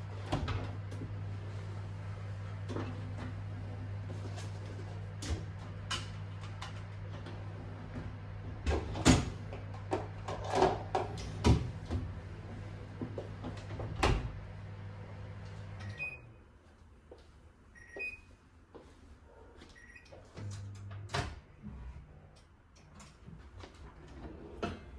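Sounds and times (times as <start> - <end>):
electrical appliance humming: 0.0 - 18.3, 19.8 - 24.9.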